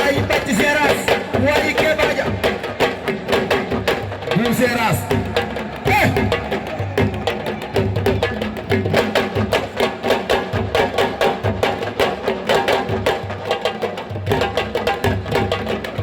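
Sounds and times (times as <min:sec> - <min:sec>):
drum ensemble fast rhythm: 0:00.0 - 0:16.0.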